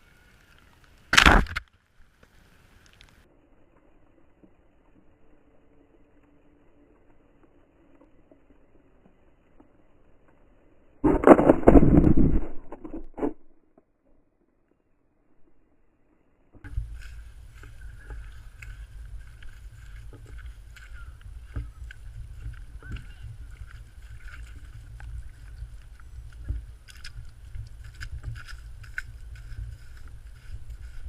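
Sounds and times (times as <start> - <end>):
sharp clicks and crunches: 0.6 - 3.2, 11.0 - 13.8, 16.6 - 31.0.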